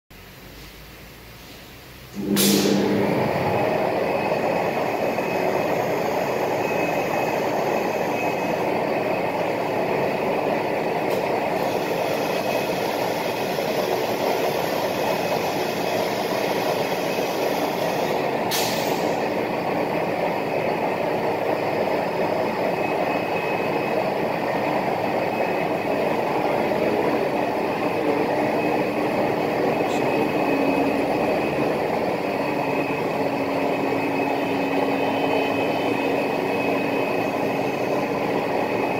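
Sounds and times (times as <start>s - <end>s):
faint high whine: 2.1s - 9.5s, 22.0s - 38.9s
cnc router machining: 2.1s - 18.4s, 19.1s - 38.9s.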